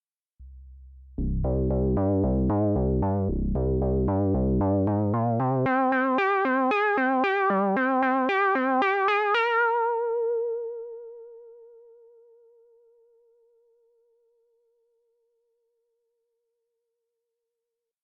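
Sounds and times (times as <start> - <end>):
synthesizer low tone: 1.2 - 11.2
synthesizer notes with vibrato: 1.2 - 11.6.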